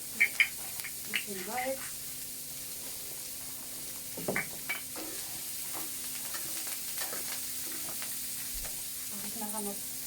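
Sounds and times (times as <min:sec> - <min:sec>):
food sizzling in a pan: 0:00.0 - 0:10.0
stirring and scraping in pan: 0:02.7 - 0:09.1.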